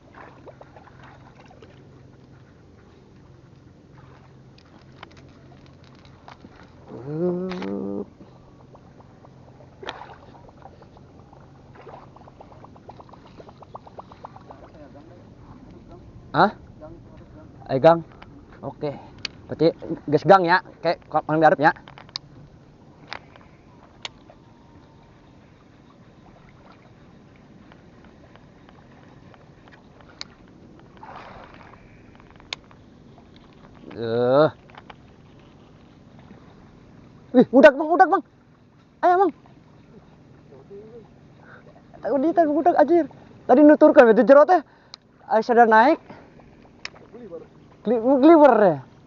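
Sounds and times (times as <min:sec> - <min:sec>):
water lapping against boat: 0:00.0 - 0:49.0
lure splashing on water: 0:03.9 - 0:15.8, 0:26.0 - 0:36.5.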